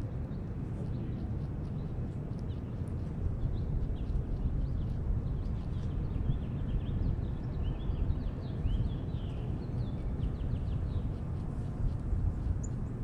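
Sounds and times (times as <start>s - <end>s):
low outdoor rumble: 0.0s - 13.0s
songbirds chirping: 0.0s - 13.0s.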